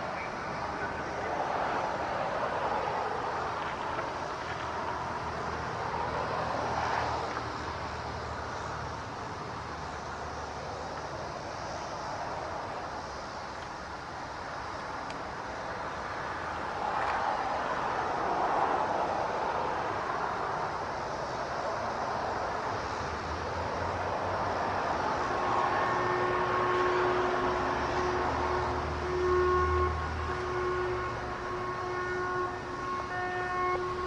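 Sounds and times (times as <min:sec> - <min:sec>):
warning sirens: 0:23.3 - 0:34.0.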